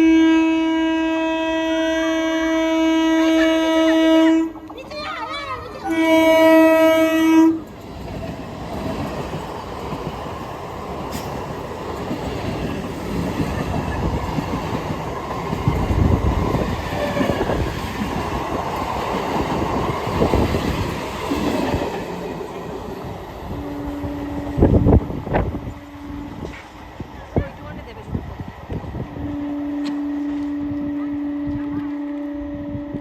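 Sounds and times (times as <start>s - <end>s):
train horn blast: 0.0s - 4.6s, 5.8s - 7.7s, 16.9s - 17.6s, 23.4s - 26.8s, 29.0s - 33.0s
train rumbling along track: 0.0s - 33.0s.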